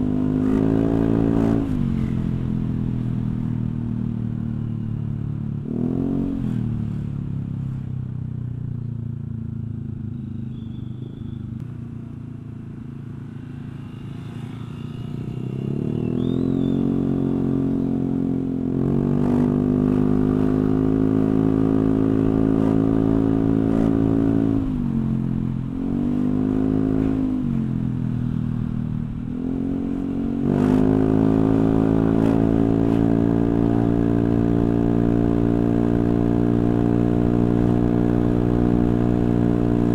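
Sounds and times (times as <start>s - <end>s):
scooter engine idling and revving: 0.0s - 39.9s.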